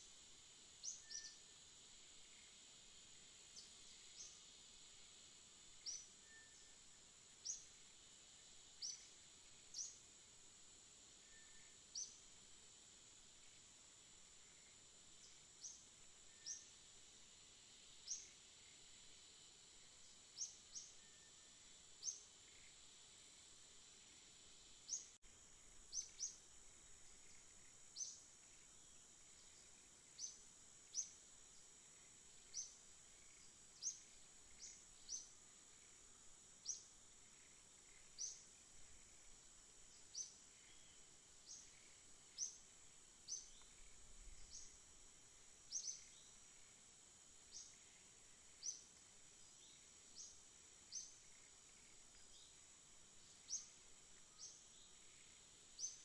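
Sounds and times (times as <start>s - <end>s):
faint outdoor hiss: 0.0s - 56.0s
bird chirping: 45.7s - 46.4s.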